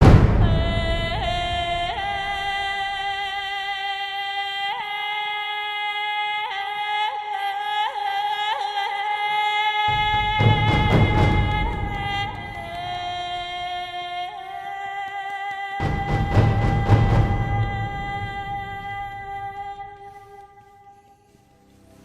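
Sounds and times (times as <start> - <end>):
deeper louder music part: 0.0 - 3.4, 9.9 - 14.0, 15.8 - 20.4
yodel-like background music: 9.8 - 22.0.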